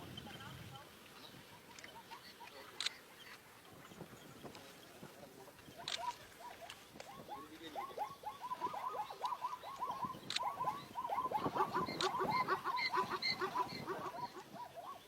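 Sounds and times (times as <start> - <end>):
sharp clicks: 5.8 - 6.2, 9.2 - 10.5.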